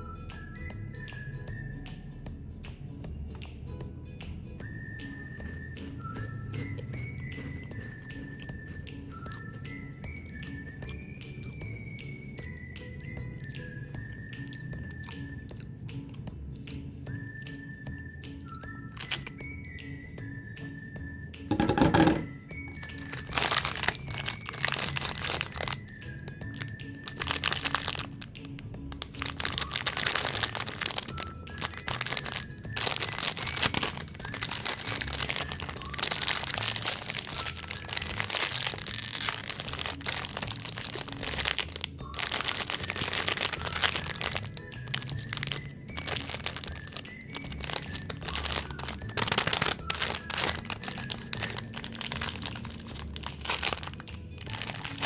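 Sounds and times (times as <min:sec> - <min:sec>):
soft background music: 0:00.0 - 0:55.0
plastic wrappers crinkling: 0:05.5 - 0:09.5, 0:18.9 - 0:19.4, 0:21.5 - 0:55.0.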